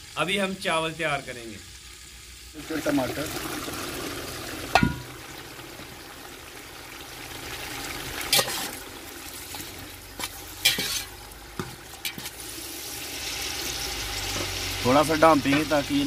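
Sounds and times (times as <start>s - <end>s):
food sizzling in hot oil: 0.0s - 16.0s
metal spatula scraping pot: 8.3s - 8.8s, 9.4s - 12.4s.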